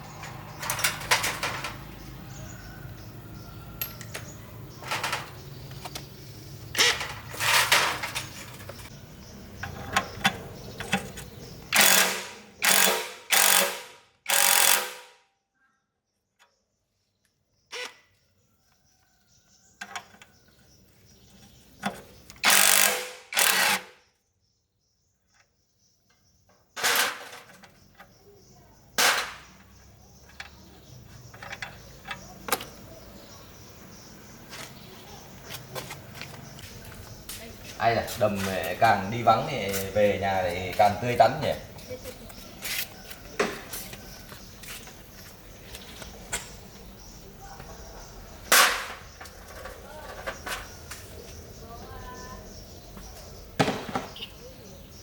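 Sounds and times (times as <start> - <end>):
loud mechanical bursts: 11.6 - 15.2, 22.4 - 24.0.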